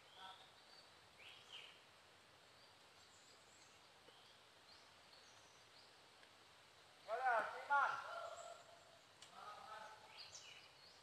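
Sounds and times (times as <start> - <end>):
faint outdoor background hiss: 0.0 - 11.0.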